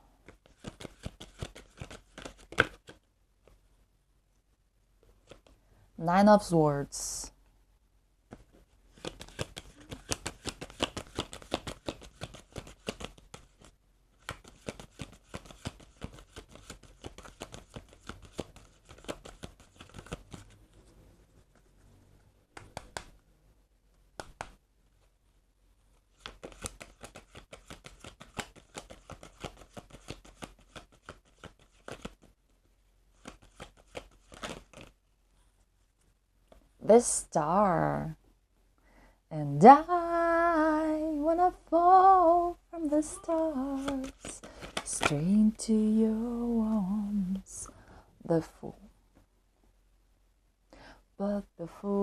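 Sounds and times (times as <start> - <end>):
tarot cards shuffling: 0.2 - 3.1, 5.1 - 5.6, 8.3 - 20.8, 26.0 - 32.4, 33.1 - 35.0, 42.8 - 45.6.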